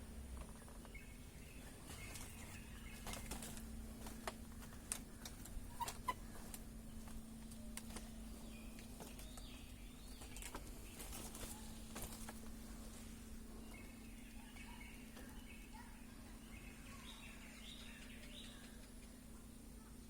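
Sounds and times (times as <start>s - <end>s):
steady low hum: 0.0s - 20.0s
bird-like chirps: 13.5s - 20.0s.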